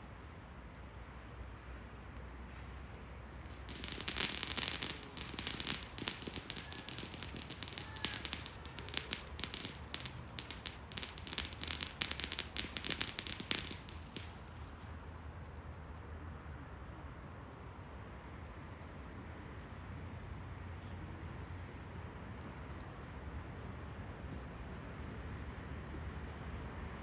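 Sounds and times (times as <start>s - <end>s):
fireworks crackling: 3.4s - 14.5s.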